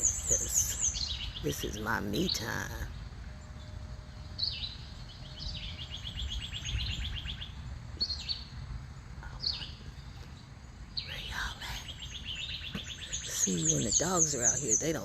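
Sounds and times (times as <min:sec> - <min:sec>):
songbird whistle and trill: 0:00.0 - 0:08.6
steady low rumble: 0:00.0 - 0:15.0.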